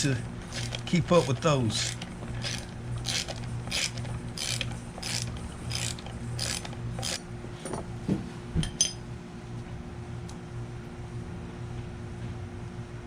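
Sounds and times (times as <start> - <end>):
hand tool turning screws: 0.0 - 7.2.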